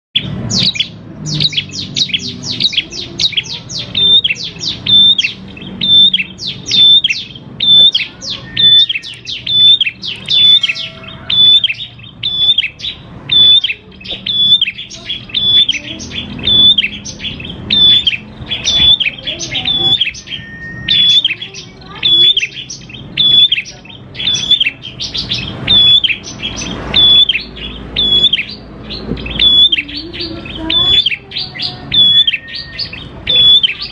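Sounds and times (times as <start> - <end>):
bird singing sharp high notes: 0.2 - 33.9.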